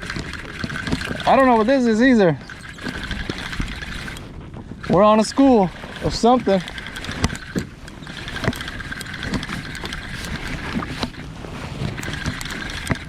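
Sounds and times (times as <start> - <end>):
water sloshing against hull: 0.0 - 13.0.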